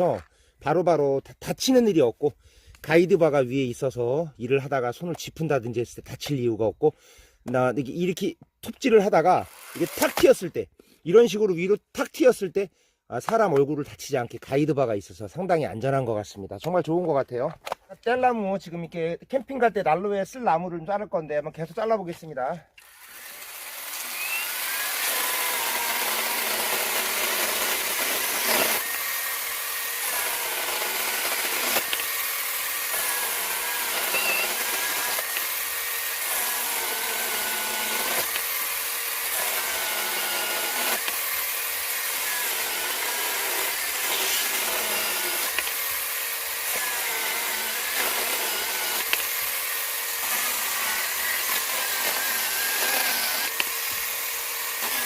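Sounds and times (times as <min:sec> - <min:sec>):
cordless chainsaw cutting wood: 0:09.0 - 0:10.5, 0:22.7 - 0:55.0.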